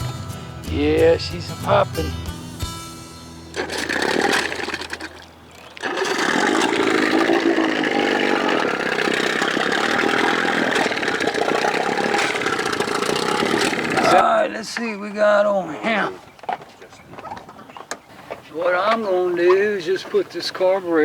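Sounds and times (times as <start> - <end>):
engine popping: 0.0 - 14.4
outboard motor running: 0.0 - 14.4.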